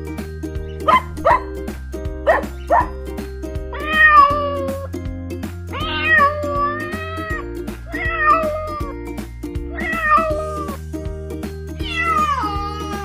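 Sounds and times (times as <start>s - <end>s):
background music: 0.0s - 13.0s
dog barks: 0.8s - 1.6s, 2.3s - 3.0s
cat meowing: 3.8s - 4.9s, 5.7s - 8.9s, 9.7s - 10.7s, 11.8s - 13.0s.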